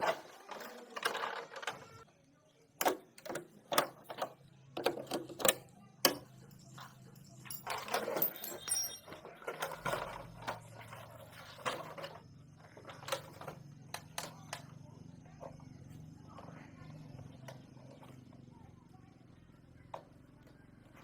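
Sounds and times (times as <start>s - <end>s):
faint low hum: 0.0s - 21.0s
hand tools clicking and knocking: 2.8s - 10.6s
rattling and scraping: 6.2s - 13.6s.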